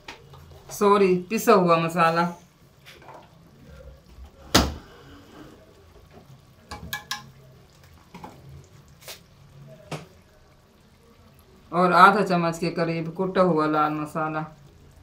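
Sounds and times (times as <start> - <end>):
sauce frying in a pot: 0.0 - 15.0
kitchen utensils clicking and knocking: 6.7 - 7.4.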